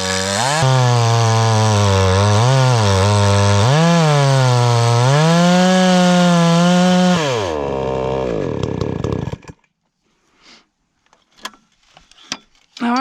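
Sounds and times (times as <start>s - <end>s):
chainsaw cutting through log: 0.0s - 9.6s.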